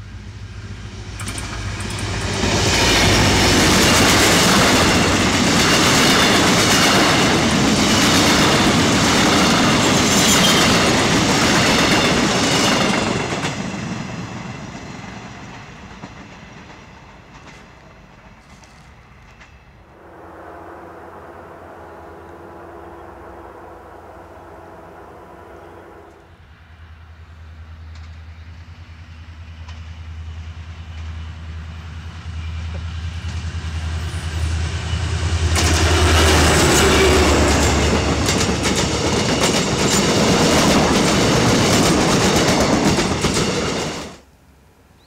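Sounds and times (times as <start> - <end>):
train wheels clattering over rail joints: 1.1 - 19.7, 35.4 - 44.2
locomotive engine rumble: 14.3 - 44.1.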